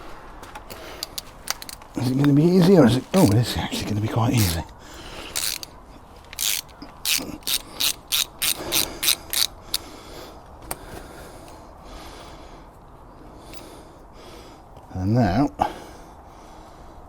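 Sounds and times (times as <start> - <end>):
ratchet wrench clicking: 1.0 - 1.9, 4.4 - 4.7, 5.3 - 9.8.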